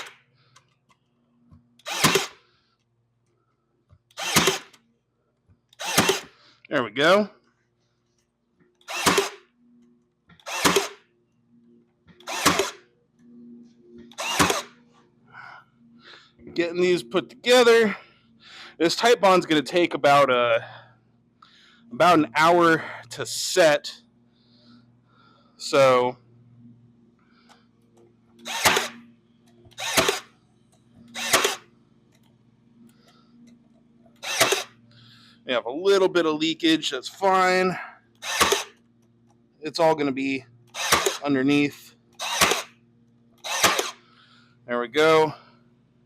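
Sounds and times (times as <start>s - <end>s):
power stapler firing into wood: 1.8s - 2.4s, 4.1s - 4.8s, 5.8s - 6.3s, 8.8s - 9.4s, 10.4s - 11.0s, 12.2s - 12.8s, 14.1s - 14.8s, 28.4s - 29.0s, 29.7s - 30.3s, 31.1s - 31.6s, 34.2s - 34.7s, 38.2s - 38.8s, 40.7s - 41.2s, 42.2s - 42.7s, 43.4s - 44.0s.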